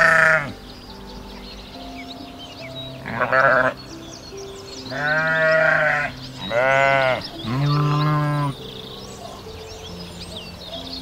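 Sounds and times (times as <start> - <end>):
sheep bleating: 0.0 - 0.5, 3.0 - 3.8, 4.9 - 8.6.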